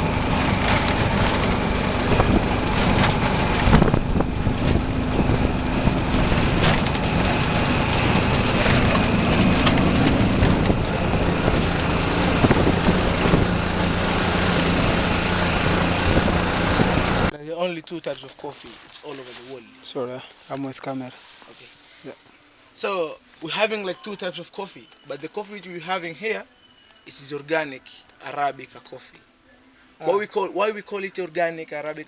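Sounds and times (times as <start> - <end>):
car engine running: 0.0 - 17.3
knocks and rattles: 0.0 - 17.3
road noise: 0.0 - 17.4.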